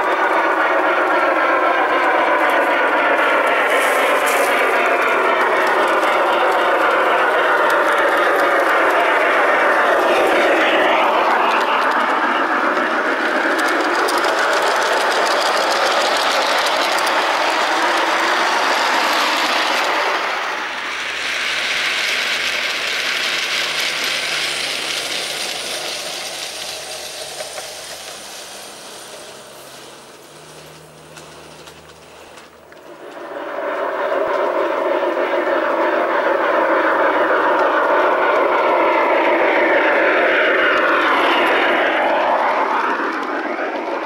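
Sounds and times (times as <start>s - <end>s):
model train wheels rumbling on rail: 0.0s - 44.0s.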